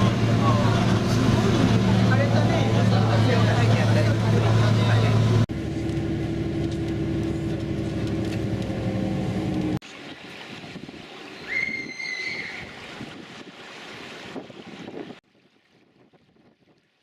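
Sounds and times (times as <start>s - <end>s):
engine drone: 0.0s - 10.1s
hiss of wind and water: 8.0s - 17.0s.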